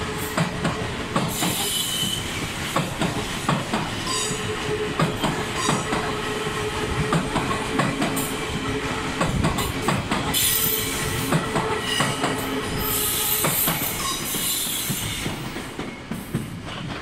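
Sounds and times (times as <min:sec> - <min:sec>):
train wheels clacking over rail joints: 0:00.0 - 0:17.0
high wheel squeal: 0:11.8 - 0:15.3.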